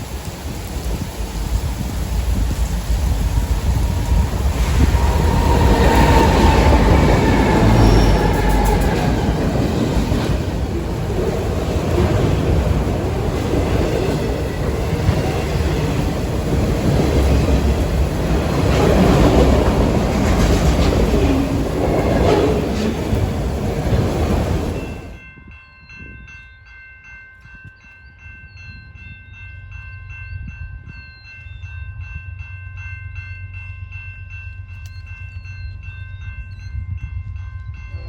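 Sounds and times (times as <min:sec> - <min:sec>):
train wheels rumbling on rail: 0:00.0 - 0:25.2
clickety-clack of wheels: 0:02.2 - 0:25.2
faint wheel squeal: 0:03.7 - 0:09.4.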